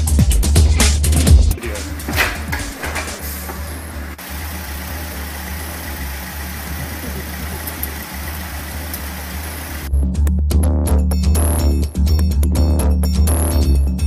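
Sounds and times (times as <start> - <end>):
engine idling: 1.5 - 9.9.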